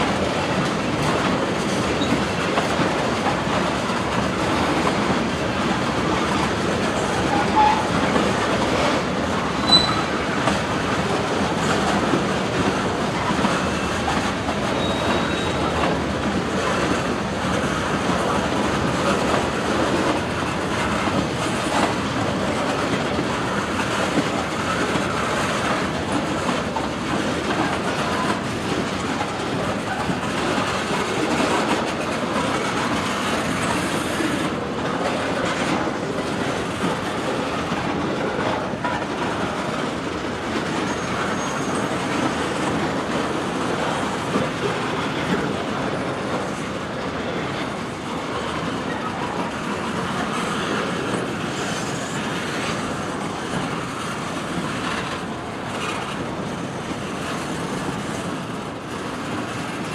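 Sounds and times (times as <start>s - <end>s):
freight cars rolling on rails: 0.0s - 59.9s
wheels clicking over rail joints: 0.1s - 59.9s
high wheel squeals: 7.2s - 8.0s, 9.6s - 10.2s, 14.8s - 15.7s, 40.8s - 42.0s.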